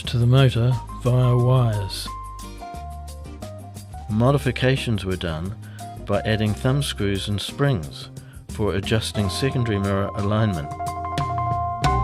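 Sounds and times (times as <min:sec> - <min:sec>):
soft held music notes: 0:00.0 - 0:12.0.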